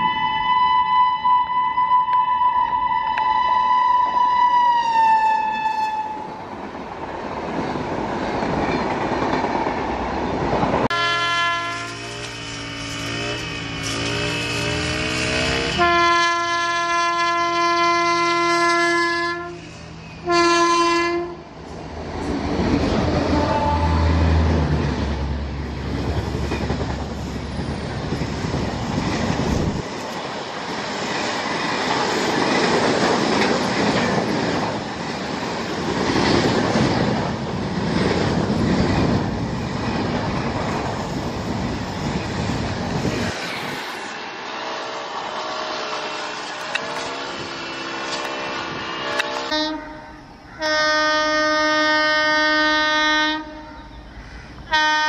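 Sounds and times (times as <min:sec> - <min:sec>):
multi-tone train horn: 0:00.0 - 0:06.5, 0:10.8 - 0:21.5, 0:23.1 - 0:24.6, 0:44.4 - 0:54.0, 0:54.7 - 0:55.0
train wheels rumbling: 0:04.1 - 0:52.8
coaches clacking over rail joints: 0:25.6 - 0:44.2, 0:46.0 - 0:49.6.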